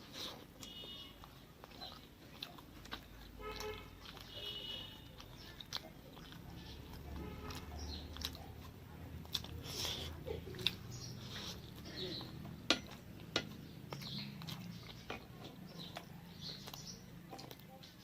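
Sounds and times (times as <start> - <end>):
person chewing: 0.0 - 18.0.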